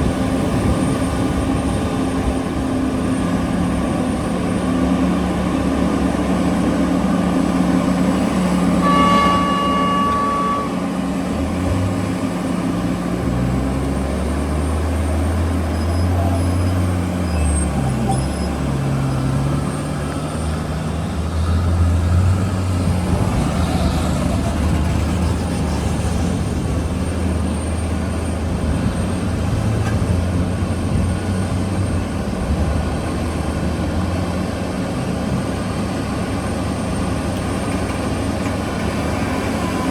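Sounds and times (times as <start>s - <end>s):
heavy diesel engines droning: 0.0s - 39.9s
horn toot: 8.8s - 11.4s.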